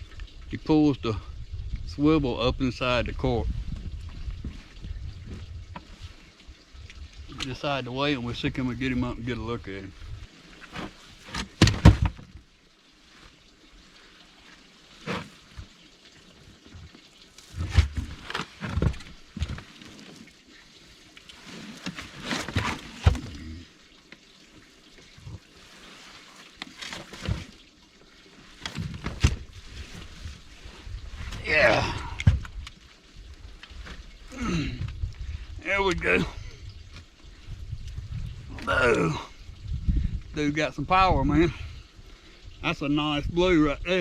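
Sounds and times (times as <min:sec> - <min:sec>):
water splashing and sloshing: 0:02.8 - 0:44.0.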